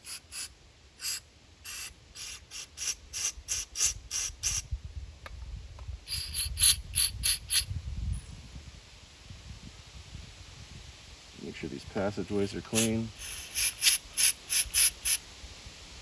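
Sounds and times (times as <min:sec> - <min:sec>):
aerosol can spraying in hissing bursts: 0:00.0 - 0:04.6, 0:06.1 - 0:07.7, 0:12.4 - 0:15.2.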